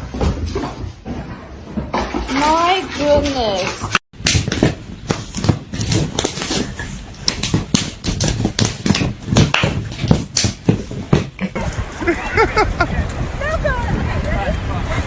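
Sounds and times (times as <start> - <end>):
sharp taps and knocks: 3.0 - 11.5.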